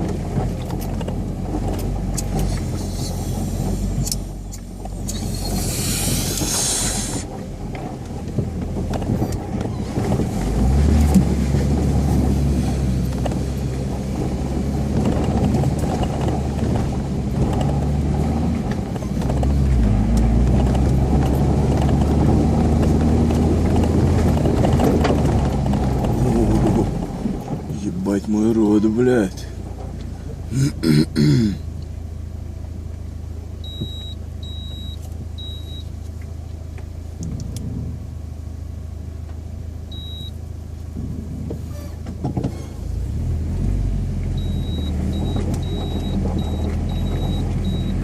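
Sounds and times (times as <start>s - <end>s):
engine working hard: 0.0s - 48.0s
loud rushing hiss: 5.6s - 7.3s.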